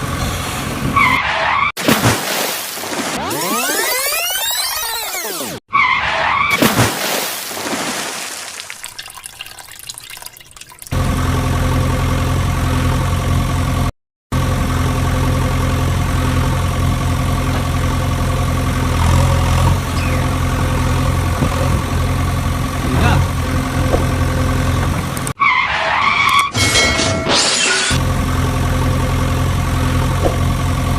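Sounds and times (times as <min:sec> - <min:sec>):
rushing splash noise: 0:01.8 - 0:03.9, 0:06.5 - 0:10.4
engine idling hum: 0:11.0 - 0:25.4, 0:28.0 - 0:30.9.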